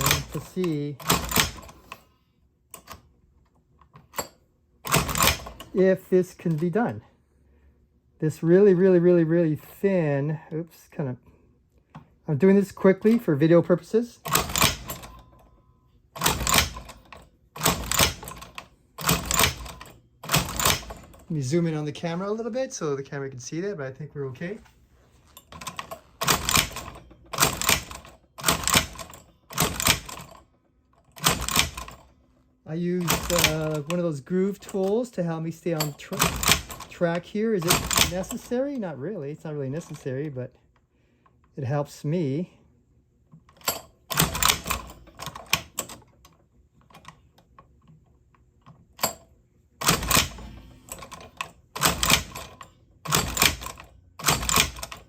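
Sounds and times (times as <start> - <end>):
hand-crank sewing machine stitching: 0.0 - 2.0, 4.2 - 5.8, 14.2 - 15.4, 16.2 - 21.5, 25.5 - 30.4, 31.1 - 32.1, 33.0 - 35.1, 35.7 - 38.5, 43.5 - 46.0, 49.8 - 55.0.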